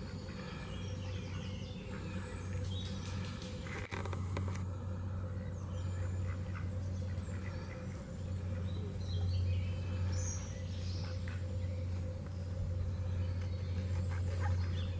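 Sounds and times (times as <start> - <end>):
birds chirping and whistling: 0.0 - 14.9
steady low rumble: 0.0 - 14.9.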